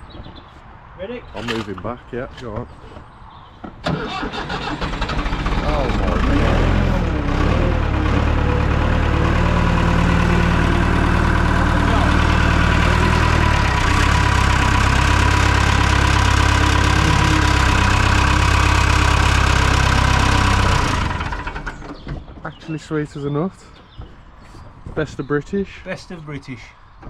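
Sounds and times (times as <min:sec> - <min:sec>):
diesel engine running loud: 0:03.9 - 0:21.9.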